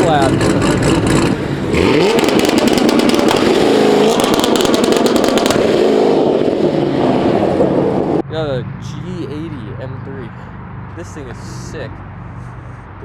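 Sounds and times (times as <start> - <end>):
exhaust pops and crackles: 0.0 - 7.1
car engine revving: 0.0 - 13.0.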